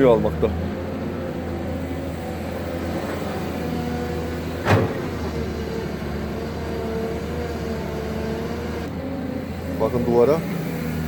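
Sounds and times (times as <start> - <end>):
excavator engine droning: 0.0 - 11.0
metal clank: 4.5 - 5.8.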